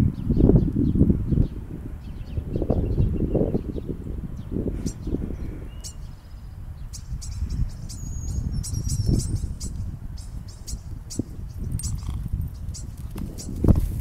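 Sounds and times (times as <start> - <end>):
small birds chirping: 0.0 - 14.0
wind on microphone: 0.0 - 14.0.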